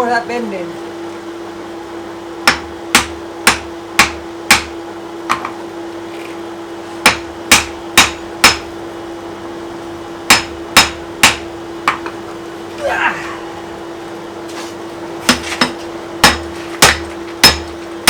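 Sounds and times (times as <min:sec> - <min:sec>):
steady hum: 0:00.0 - 0:18.0
hammer striking hot steel: 0:02.4 - 0:05.5, 0:07.0 - 0:08.7, 0:10.3 - 0:12.1, 0:15.3 - 0:17.8.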